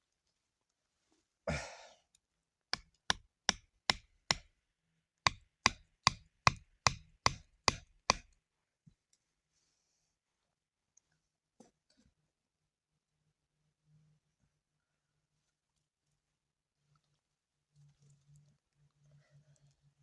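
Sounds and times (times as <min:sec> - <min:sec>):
tool striking wood: 0:02.8 - 0:04.5, 0:05.3 - 0:08.3.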